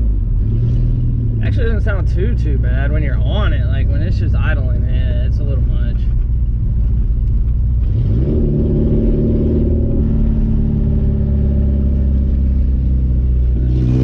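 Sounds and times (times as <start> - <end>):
loud engine revving: 7.8 - 14.0.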